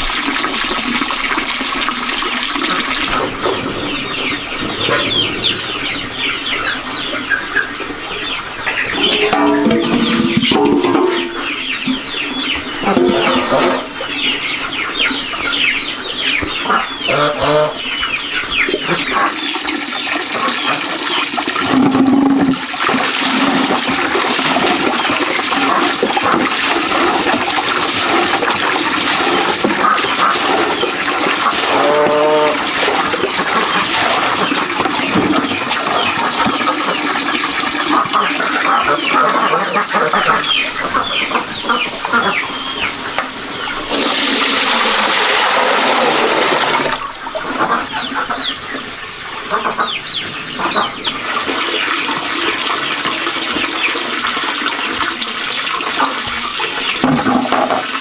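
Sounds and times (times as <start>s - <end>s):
chickens clucking: 1.6s - 58.0s
chicks cheeping: 3.1s - 19.4s, 27.0s - 44.6s, 47.7s - 52.1s.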